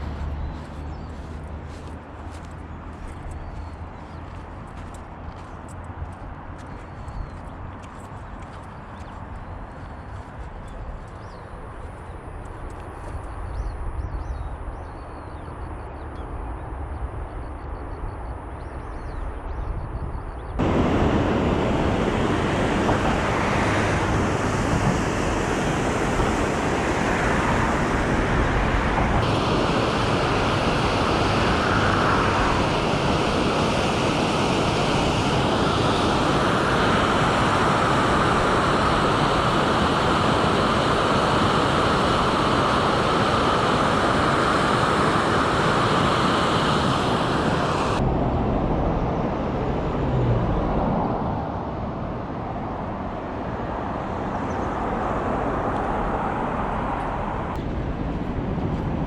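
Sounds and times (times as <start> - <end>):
river rushing: 20.6 - 48.1.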